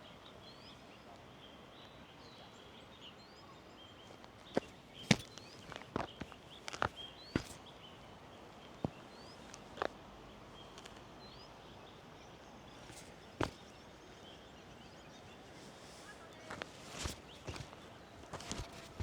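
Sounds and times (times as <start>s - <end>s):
bicycle rattling on rough road: 4.5s - 7.6s, 12.8s - 13.6s, 16.4s - 19.0s.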